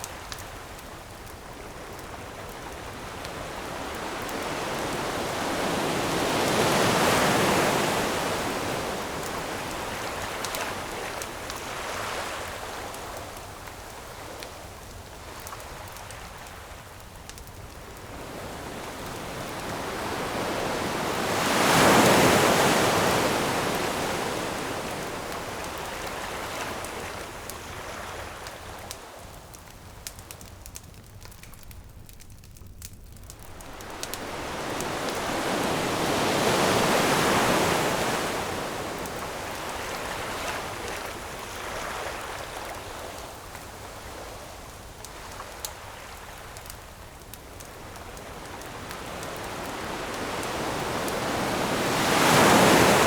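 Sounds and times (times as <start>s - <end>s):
campfire popping: 0.0s - 6.7s, 12.4s - 20.2s, 24.8s - 37.3s, 42.2s - 51.2s
ocean waves breaking: 2.5s - 12.6s, 18.0s - 28.3s, 33.4s - 43.5s, 47.8s - 53.0s.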